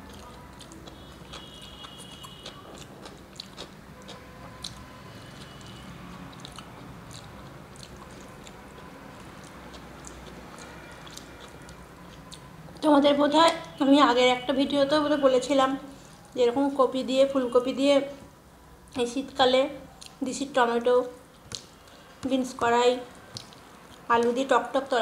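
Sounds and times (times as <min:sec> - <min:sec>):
mouth clicks and smacks: 0:00.0 - 0:12.5, 0:19.9 - 0:20.2, 0:21.3 - 0:22.0, 0:23.2 - 0:24.4
person chewing food: 0:00.0 - 0:12.8, 0:19.9 - 0:20.2, 0:23.2 - 0:24.1.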